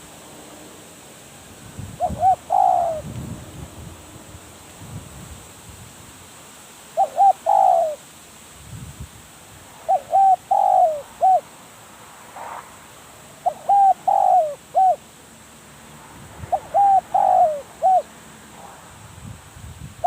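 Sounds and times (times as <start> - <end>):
dove cooing: 1.9 - 3.1, 6.9 - 8.0, 9.8 - 11.5, 13.4 - 15.0, 16.5 - 18.2.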